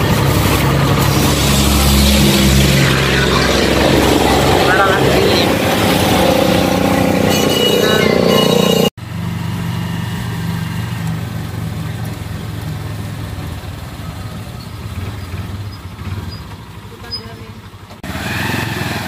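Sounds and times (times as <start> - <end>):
low engine drone: 0.0 - 14.2
motorcycle engine running: 0.0 - 18.0.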